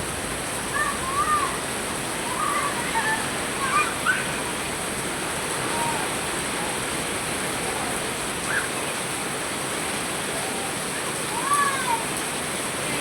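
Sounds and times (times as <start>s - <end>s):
heavy rain: 0.0s - 13.0s
faint voices: 5.4s - 9.4s.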